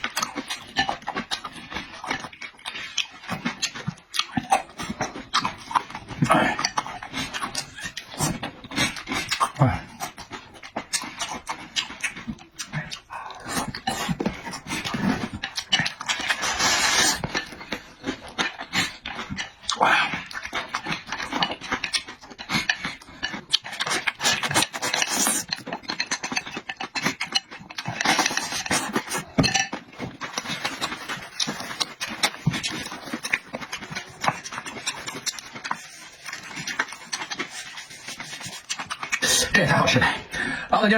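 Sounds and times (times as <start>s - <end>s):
slurping: 0.0s - 40.9s
wet chewing and smacking: 0.0s - 40.9s
heavy breathing: 40.1s - 40.8s.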